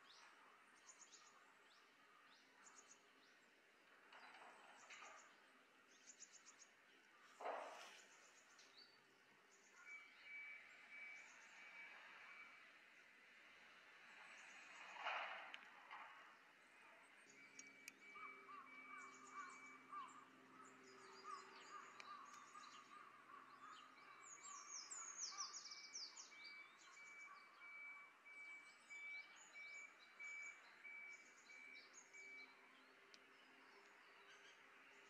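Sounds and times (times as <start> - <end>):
small birds chirping: 16.4 - 27.6, 28.7 - 35.0.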